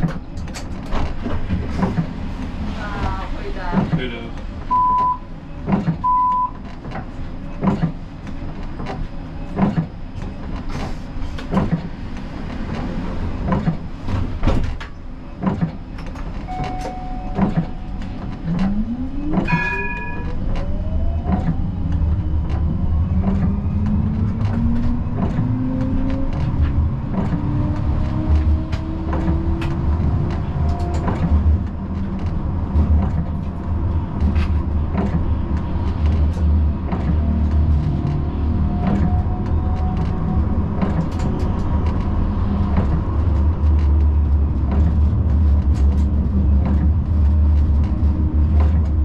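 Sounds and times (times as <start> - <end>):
short beep: 4.7 - 5.3, 6.0 - 6.5, 16.5 - 18.0, 19.5 - 20.4
three-note chime: 19.5 - 20.3.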